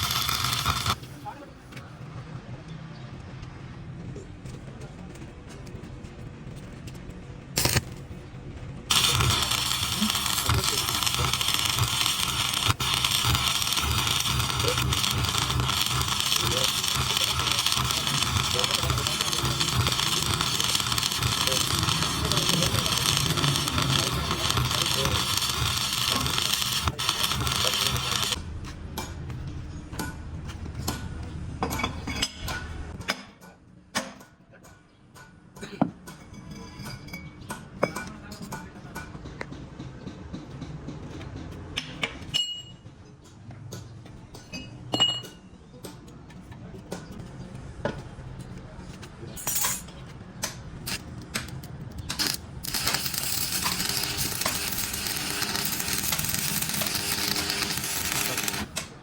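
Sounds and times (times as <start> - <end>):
loud steady hiss: 0.0 - 1.1, 7.6 - 7.9, 8.9 - 28.4, 52.1 - 58.8.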